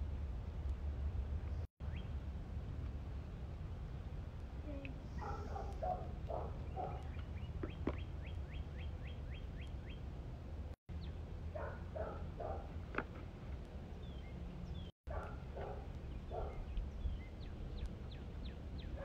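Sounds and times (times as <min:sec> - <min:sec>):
low steady rumble: 0:00.0 - 0:19.0
small bird singing: 0:01.8 - 0:02.2, 0:06.3 - 0:10.1, 0:10.9 - 0:11.2, 0:13.8 - 0:14.9, 0:15.6 - 0:19.0.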